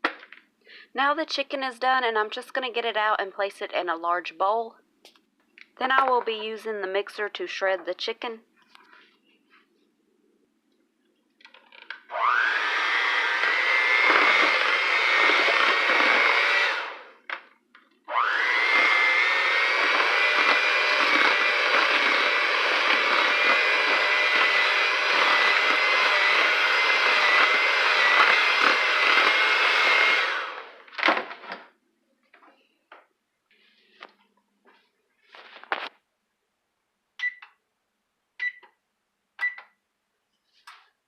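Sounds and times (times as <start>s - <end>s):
electric mixer motor whining: 12.1s - 17.2s, 18.1s - 30.8s.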